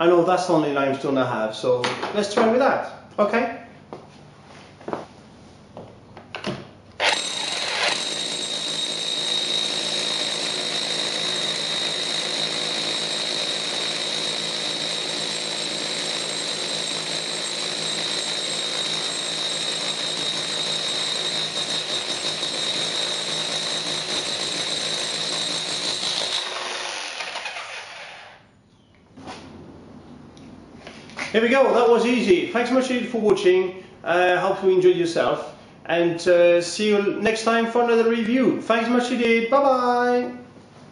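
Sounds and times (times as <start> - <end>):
high whine: 7.0 - 14.0
rotary hammer drilling into stone: 7.0 - 28.4.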